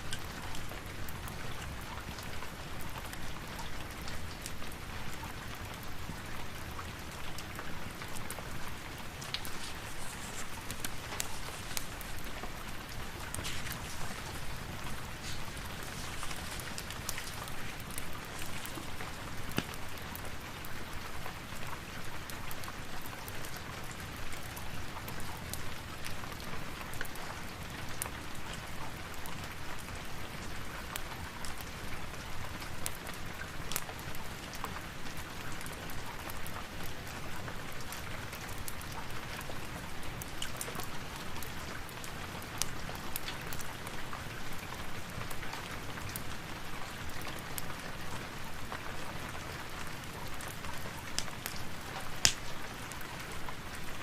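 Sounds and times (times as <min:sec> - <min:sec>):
steady rain hiss: 0:00.0 - 0:54.0
raindrop clicks: 0:07.2 - 0:20.2, 0:51.2 - 0:52.6.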